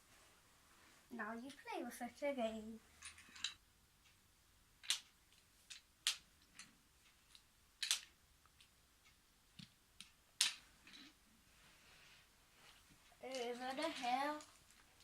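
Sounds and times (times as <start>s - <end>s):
toy train cars clicking on track: 13.2s - 14.9s.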